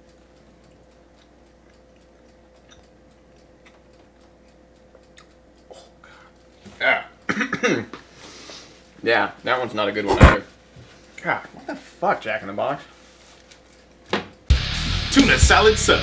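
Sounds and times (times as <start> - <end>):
faint steady hum: 0.0 - 16.0
man chewing: 0.1 - 6.5
loud voice: 10.1 - 10.4.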